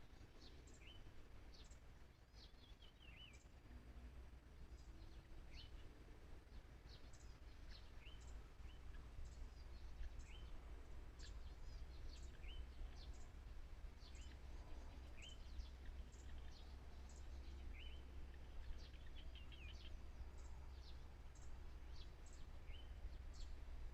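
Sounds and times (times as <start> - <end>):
faint low rumble: 0.0 - 23.9
small bird chirping: 4.6 - 23.6.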